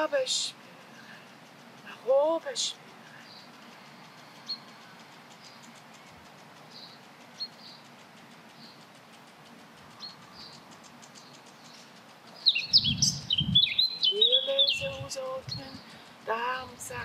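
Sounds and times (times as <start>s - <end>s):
faint high bird chirps: 9.8s - 16.0s
loud bird song whistles: 12.4s - 15.7s.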